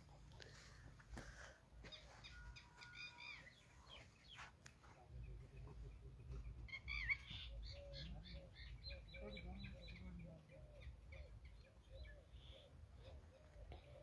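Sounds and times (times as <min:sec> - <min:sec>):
small birds chirping: 0:01.8 - 0:14.0.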